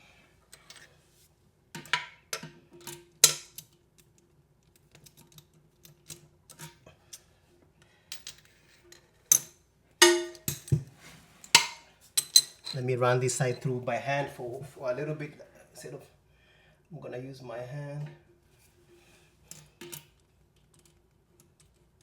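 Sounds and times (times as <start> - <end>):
metal clanks: 10.0 - 10.8.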